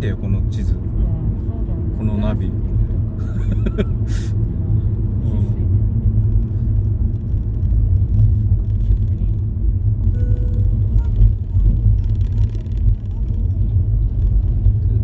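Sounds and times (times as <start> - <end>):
car driving rumble from inside: 0.0 - 15.0
short tone: 10.1 - 11.3.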